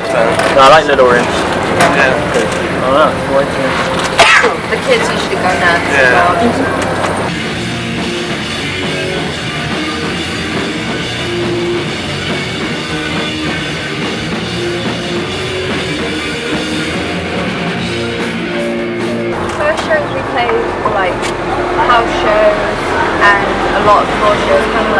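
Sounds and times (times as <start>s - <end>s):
electric guitar: 0.0s - 22.8s
rock band playing: 0.0s - 24.9s
drum kit: 6.4s - 21.9s.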